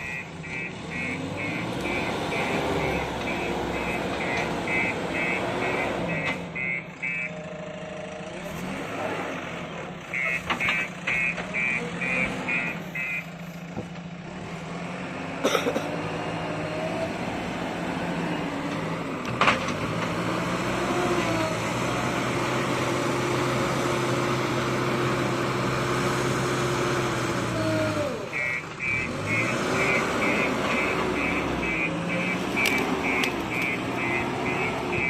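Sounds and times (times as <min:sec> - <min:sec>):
reversing alarm beeps: 0:00.0 - 0:07.4, 0:10.1 - 0:13.3, 0:28.3 - 0:35.0
bulldozer diesel engine droning: 0:00.0 - 0:35.0.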